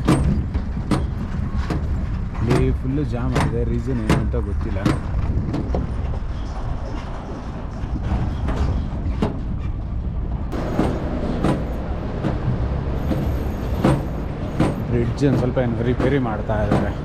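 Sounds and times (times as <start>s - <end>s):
vehicle engine rumbling: 0.0s - 17.0s
short sharp knocks: 13.1s - 17.0s.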